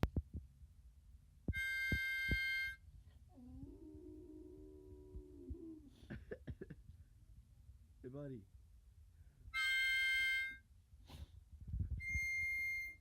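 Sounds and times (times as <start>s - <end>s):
harmonica chord: 1.5s - 2.8s, 9.6s - 10.6s, 12.1s - 13.0s.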